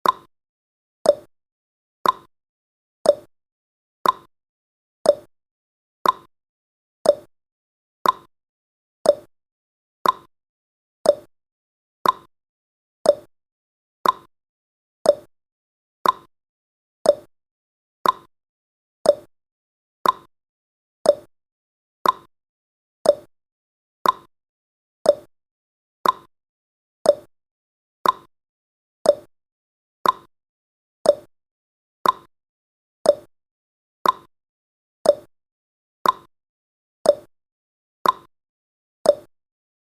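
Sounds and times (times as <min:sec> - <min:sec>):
timer ticking clicks: 0:00.0 - 0:00.3, 0:01.0 - 0:01.3, 0:02.0 - 0:02.3, 0:03.0 - 0:03.3, 0:04.0 - 0:04.3, 0:05.0 - 0:05.3, 0:06.0 - 0:06.3, 0:07.0 - 0:07.3, 0:08.0 - 0:08.3, 0:09.0 - 0:09.3, 0:10.0 - 0:10.3, 0:11.0 - 0:11.3, 0:12.0 - 0:12.3, 0:13.0 - 0:13.3, 0:14.0 - 0:14.3, 0:15.0 - 0:15.3, 0:16.0 - 0:16.3, 0:17.0 - 0:17.3, 0:18.0 - 0:18.3, 0:19.0 - 0:19.3, 0:20.0 - 0:20.3, 0:21.0 - 0:21.3, 0:22.0 - 0:22.3, 0:23.0 - 0:23.3, 0:24.0 - 0:24.3, 0:25.0 - 0:25.3, 0:26.0 - 0:26.3, 0:27.0 - 0:27.3, 0:28.0 - 0:28.3, 0:29.0 - 0:29.3, 0:30.0 - 0:30.3, 0:31.0 - 0:31.3, 0:32.0 - 0:32.3, 0:33.0 - 0:33.3, 0:34.0 - 0:34.3, 0:35.0 - 0:35.3, 0:36.0 - 0:36.3, 0:37.0 - 0:37.3, 0:38.0 - 0:38.3, 0:39.0 - 0:39.3.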